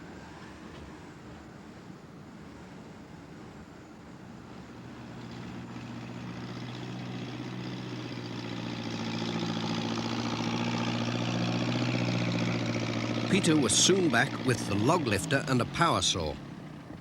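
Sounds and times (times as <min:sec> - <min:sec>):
machine engine running: 0:04.8 - 0:17.0.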